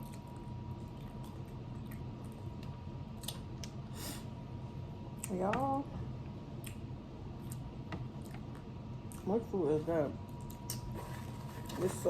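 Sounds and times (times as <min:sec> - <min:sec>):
food being chewed: 0:00.0 - 0:03.8, 0:06.6 - 0:09.3
steady low hum: 0:00.0 - 0:12.0.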